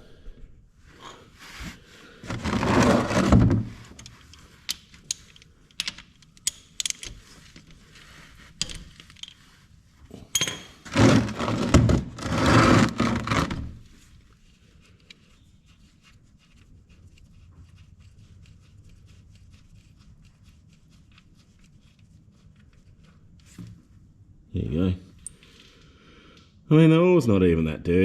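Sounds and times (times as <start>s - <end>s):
drain pan scraping: 2.3s - 3.7s, 10.9s - 13.7s
metal tool clinks and knocks: 10.3s - 10.8s.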